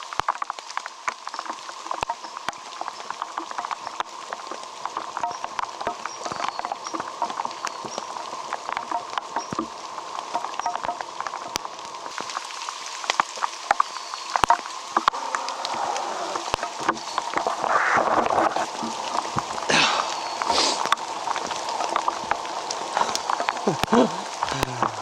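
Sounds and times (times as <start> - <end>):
rain falling: 0.0 - 25.0
raindrops ticking on a surface: 0.0 - 25.0
rustle: 0.0 - 25.0.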